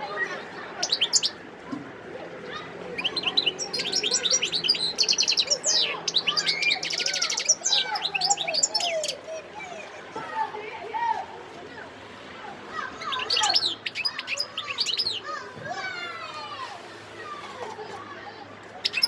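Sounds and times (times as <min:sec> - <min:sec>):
goldfinch singing: 0:00.2 - 0:01.4, 0:02.9 - 0:09.3, 0:13.0 - 0:15.3, 0:18.8 - 0:19.0.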